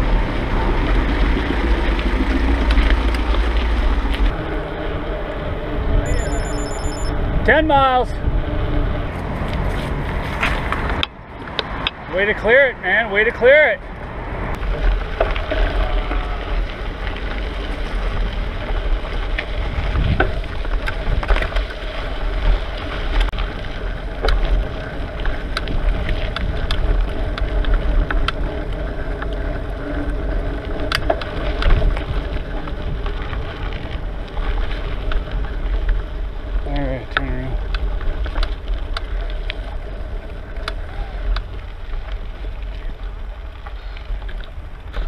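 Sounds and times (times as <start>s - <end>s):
bicycle road rumble: 0.0s - 45.0s
bike clicks and rattles: 9.1s - 12.1s, 13.9s - 45.0s
wind buffeting microphone: 14.0s - 45.0s.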